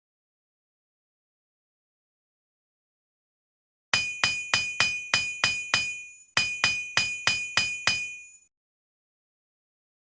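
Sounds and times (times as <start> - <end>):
hammer striking steel anvil: 4.0 - 8.5.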